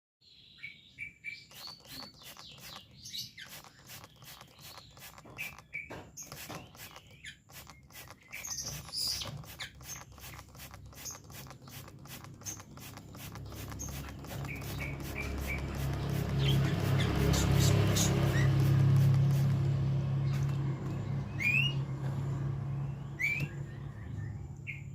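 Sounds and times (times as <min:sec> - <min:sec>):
bird chirping: 0:00.2 - 0:22.0, 0:22.6 - 0:24.9
quick clicks and patters: 0:01.5 - 0:21.1.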